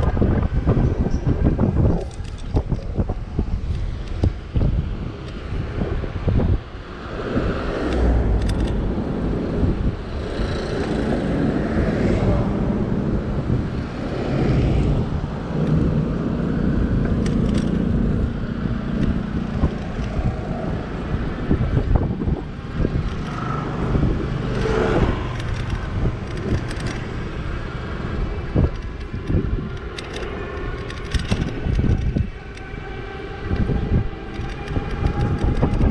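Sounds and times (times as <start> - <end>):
road and car traffic rumble: 0.0 - 35.9
wind rushing over microphone: 0.0 - 35.9
rattling clicks: 1.9 - 2.9, 7.9 - 8.9, 17.0 - 17.9, 19.0 - 20.3, 23.0 - 23.5, 24.5 - 27.2, 28.6 - 32.8, 33.5 - 35.9.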